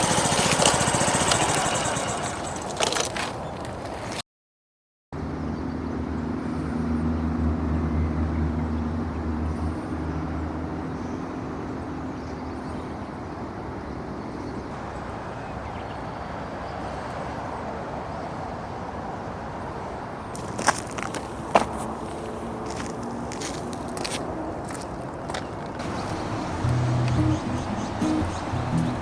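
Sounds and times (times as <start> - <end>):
vehicle engine running: 0.0 - 2.6, 25.8 - 29.0
outdoor background noise: 0.0 - 4.2, 5.2 - 29.0.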